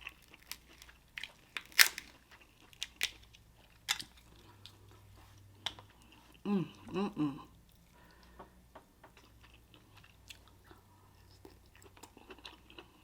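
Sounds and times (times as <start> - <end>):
crab shells cracking and crunching: 0.0 - 4.5.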